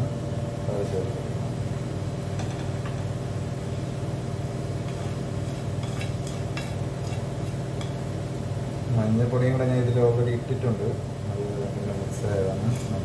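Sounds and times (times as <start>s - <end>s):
steady low hum: 0.0s - 13.0s
masala sizzling in pan: 1.8s - 8.9s
wooden spatula stirring: 4.9s - 7.3s.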